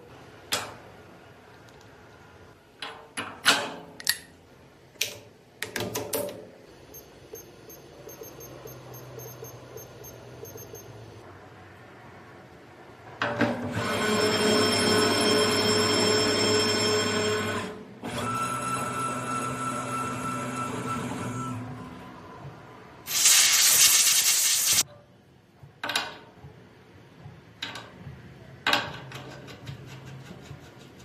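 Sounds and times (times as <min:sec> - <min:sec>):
loud burst of hiss: 0:23.1 - 0:24.8.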